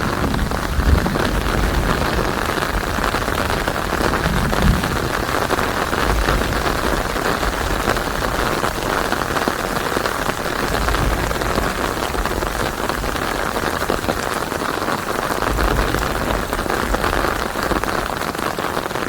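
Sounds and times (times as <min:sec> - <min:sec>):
low rumble: 0:00.0 - 0:14.5
heavy rain: 0:00.0 - 0:19.0.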